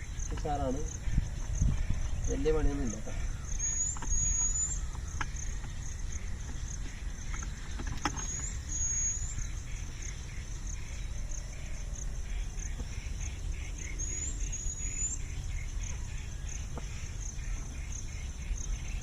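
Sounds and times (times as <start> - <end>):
insects chirping: 0.0 - 19.0
rising bird whistles: 3.4 - 5.1, 8.2 - 9.6.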